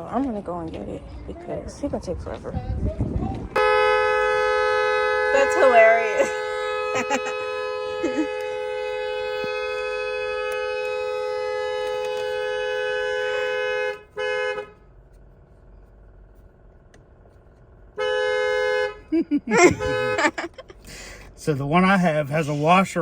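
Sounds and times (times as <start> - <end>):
two-note car horn blaring: 3.6 - 14.8, 18.0 - 20.6.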